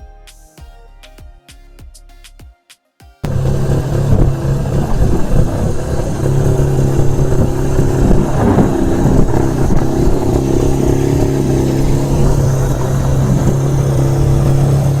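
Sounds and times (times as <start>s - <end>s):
rotary engine running steadily: 3.2s - 15.0s.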